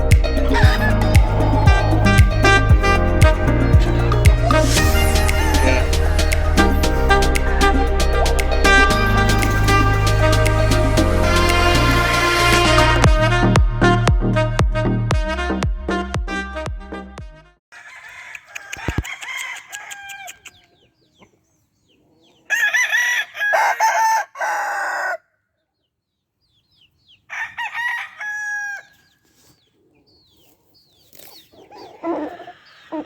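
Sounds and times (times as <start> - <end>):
background music: 0.0 - 17.4
roosters crowing: 0.3 - 10.2, 17.7 - 20.7, 22.4 - 25.4, 27.3 - 29.2, 31.5 - 33.0.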